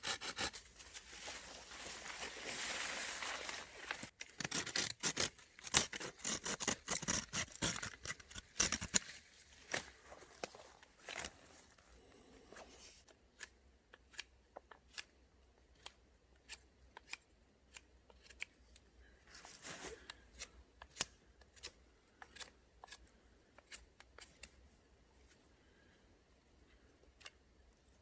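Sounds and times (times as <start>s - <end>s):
rustling: 0.4s - 4.3s.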